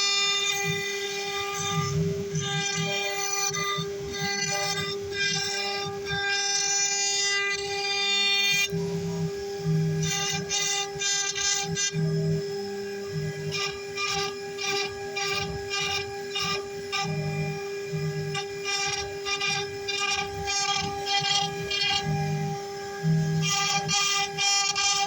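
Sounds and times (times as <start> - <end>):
router spindle whine: 0.0 - 25.0
stepper motors whining: 8.7 - 25.0.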